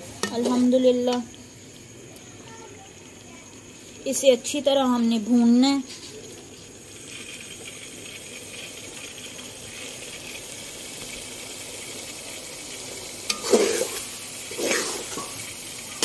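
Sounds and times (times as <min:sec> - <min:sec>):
chicken sizzling in a pot: 0:00.0 - 0:16.0
metal spoon scraping a pot: 0:13.3 - 0:15.4.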